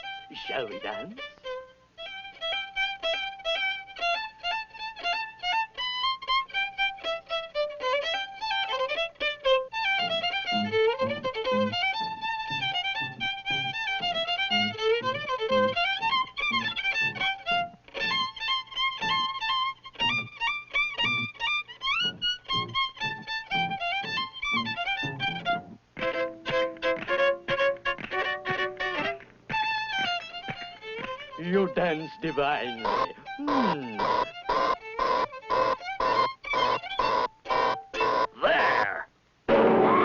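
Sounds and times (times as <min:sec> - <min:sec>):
lively fiddle dance tune: 0:00.0 - 0:38.9.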